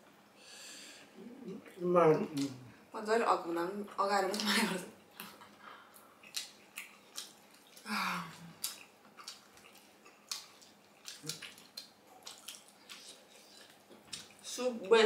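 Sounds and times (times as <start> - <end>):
person humming mm: 1.2 - 1.7, 7.8 - 8.6
people chewing wetly: 5.1 - 14.6.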